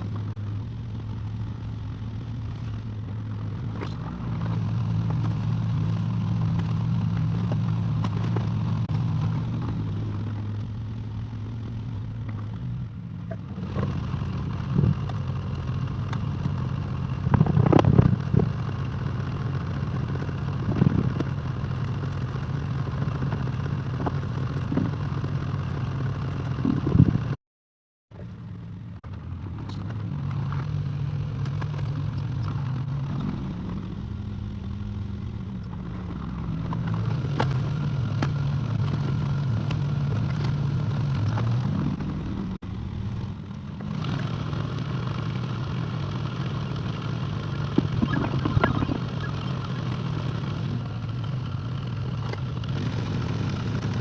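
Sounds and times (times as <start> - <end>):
excavator diesel engine running: 31.6 - 54.0.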